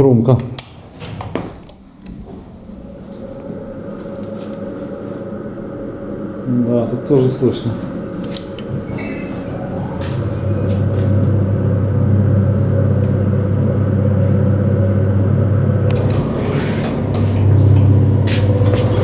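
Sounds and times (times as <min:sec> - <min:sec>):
elevator hoist machine humming: 0:00.7 - 0:19.0.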